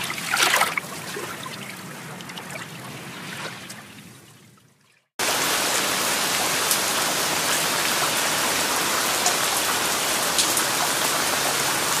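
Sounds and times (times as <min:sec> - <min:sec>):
steady rain falling: 0:05.2 - 0:12.0.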